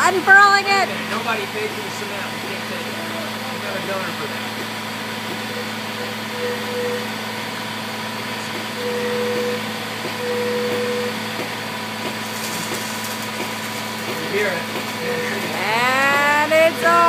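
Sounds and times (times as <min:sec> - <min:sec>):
diesel truck engines idling: 0:00.0 - 0:17.0
short whining tones: 0:05.3 - 0:07.6.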